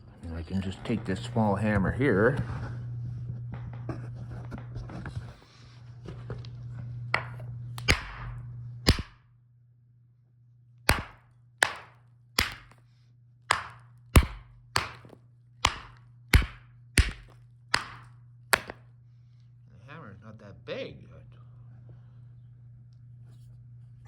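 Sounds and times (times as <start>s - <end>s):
low steady hum: 0.0s - 24.0s
hammer striking rock: 7.2s - 8.3s, 8.9s - 9.2s, 10.9s - 12.8s, 13.5s - 18.8s.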